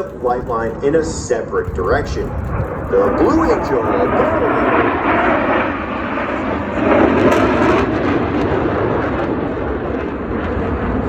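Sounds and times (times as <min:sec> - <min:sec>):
jets flying past: 0:00.0 - 0:10.5.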